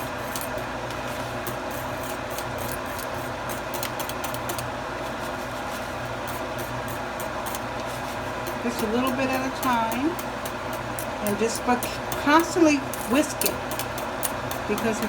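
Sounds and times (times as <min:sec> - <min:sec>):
steady background hum: 0:00.0 - 0:15.0
wire whisk clicking and scraping pot: 0:01.4 - 0:04.7, 0:06.2 - 0:15.0.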